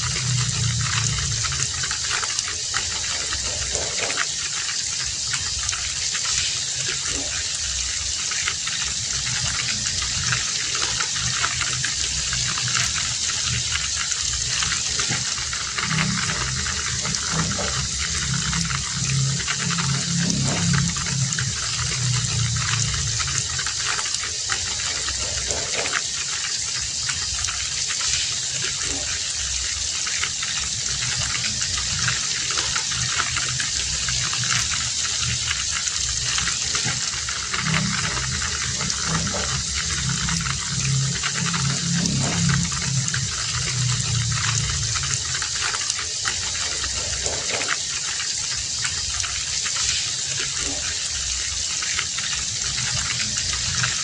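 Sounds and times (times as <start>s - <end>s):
low rumble: 0.0s - 4.2s, 8.8s - 26.0s, 30.9s - 47.9s
heavy rain falling: 0.0s - 54.0s.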